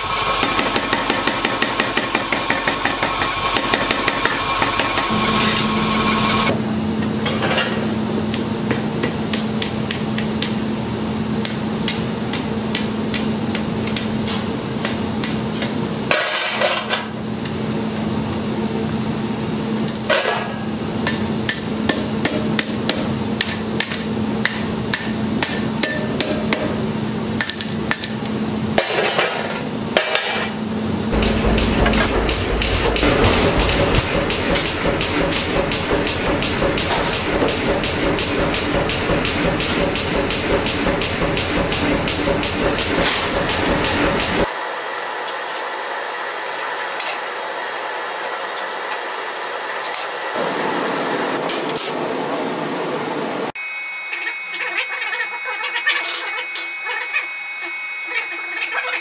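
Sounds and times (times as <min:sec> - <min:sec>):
hammer striking anvil: 0:00.4 - 0:06.5, 0:19.9 - 0:26.8, 0:31.1 - 0:44.5
low hum: 0:31.0 - 0:44.5.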